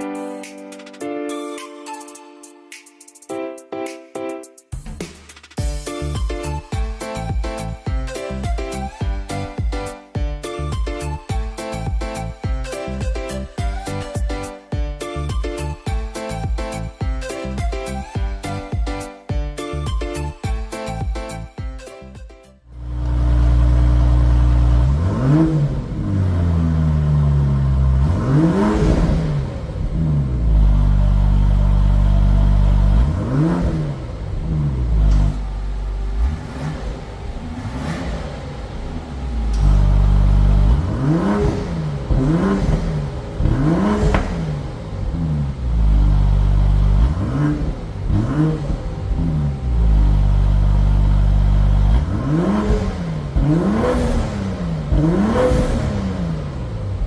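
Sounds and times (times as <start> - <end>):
car engine idling: 22.7 - 57.0
car engine revving: 22.7 - 57.0.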